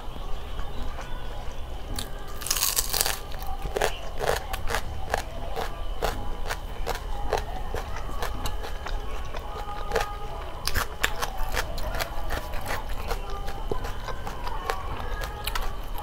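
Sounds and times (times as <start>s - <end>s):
crunchy chewing: 0.0s - 16.0s.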